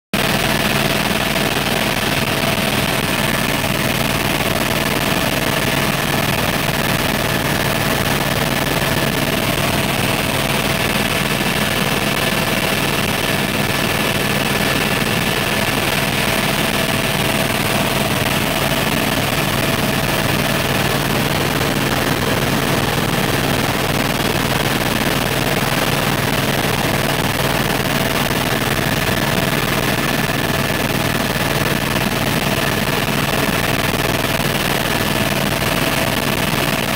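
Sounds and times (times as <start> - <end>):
helicopter engine and rotor drone: 0.2 - 36.9.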